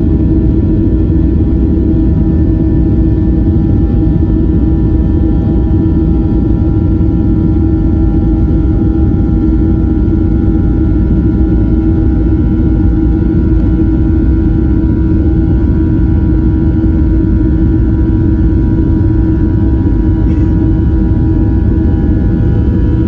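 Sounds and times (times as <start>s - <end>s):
jet engine low rumble: 0.0s - 23.0s
jet engine whine: 0.0s - 23.0s.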